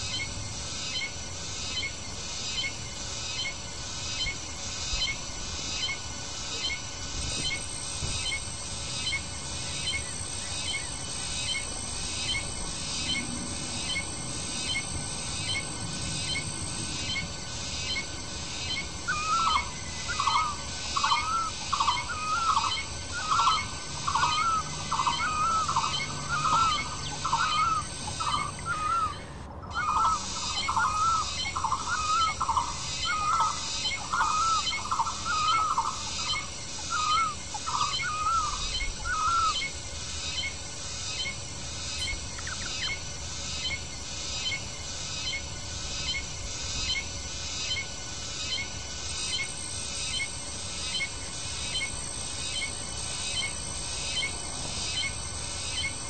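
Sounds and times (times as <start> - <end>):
high bird chirping: 17.8 - 39.7.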